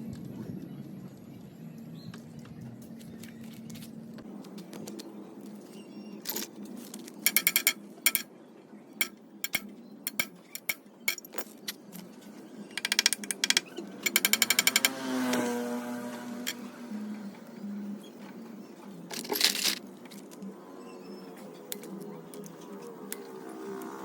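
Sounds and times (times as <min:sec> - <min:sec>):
sharp clicks and taps: 0:09.0 - 0:11.2.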